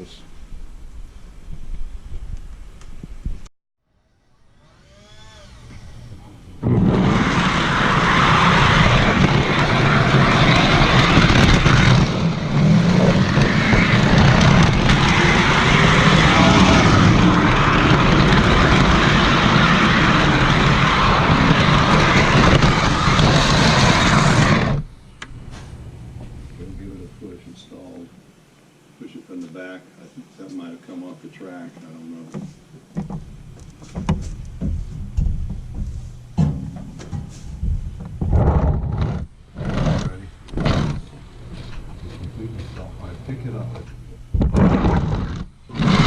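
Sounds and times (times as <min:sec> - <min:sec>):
model train wheels rumbling on rails: 0:06.8 - 0:24.8.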